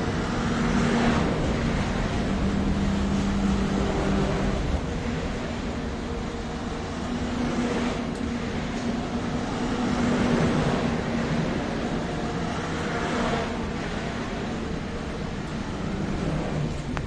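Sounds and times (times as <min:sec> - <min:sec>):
passenger train rumbling: 0:00.0 - 0:17.0.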